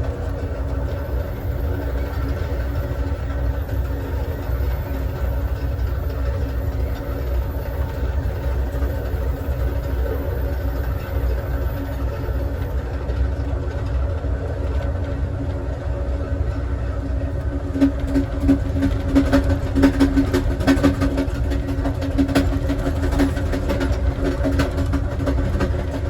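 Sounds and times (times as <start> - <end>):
train car rumbling on rails: 0.0 - 26.0.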